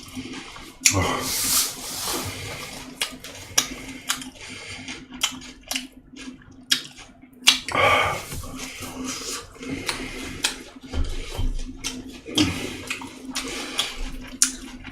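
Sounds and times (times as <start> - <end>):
faint steady hum: 0.0 - 14.9
chewing with wet clicks: 2.9 - 7.8, 8.5 - 14.9.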